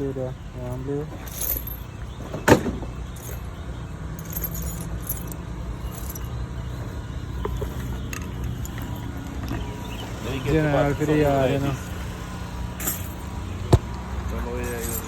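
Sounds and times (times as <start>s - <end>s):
faint jingling: 0.0s - 6.8s, 12.7s - 15.0s
vehicle engine rumbling: 0.0s - 15.0s.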